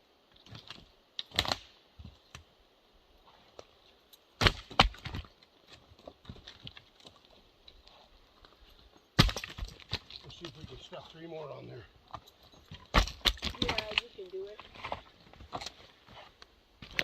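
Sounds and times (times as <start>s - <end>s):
firewood logs knocking together: 0.3s - 2.5s, 4.4s - 7.4s, 9.2s - 10.9s, 12.1s - 15.9s, 16.8s - 17.0s.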